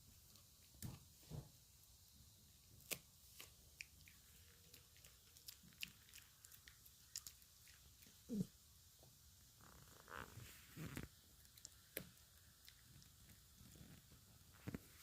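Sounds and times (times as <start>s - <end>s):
dog crunching chew stick: 2.8s - 8.2s.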